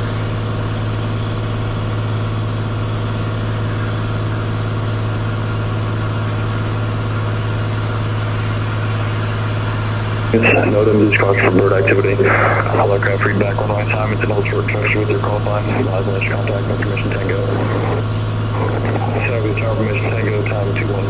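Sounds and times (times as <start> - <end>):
propeller aircraft engine droning: 0.0 - 21.0.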